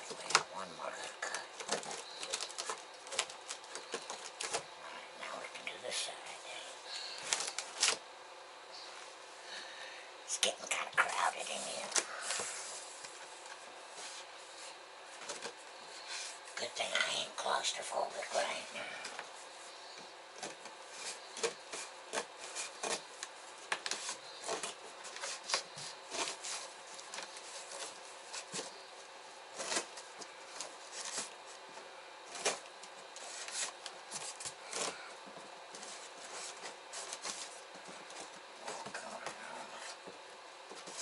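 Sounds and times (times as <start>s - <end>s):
cardboard scraping: 32.3s - 35.1s.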